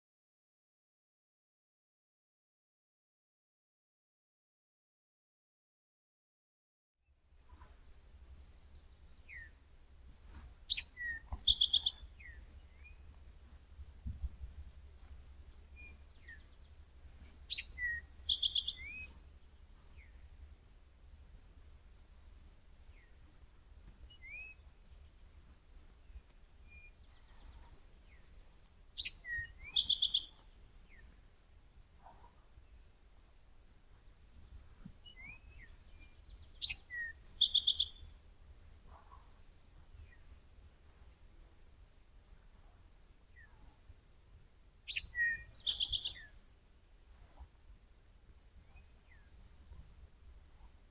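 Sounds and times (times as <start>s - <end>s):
songbirds chirping: 7.2s - 50.9s
bird trill: 10.7s - 13.1s, 17.5s - 19.2s, 29.0s - 30.5s, 35.1s - 38.0s, 44.9s - 46.3s.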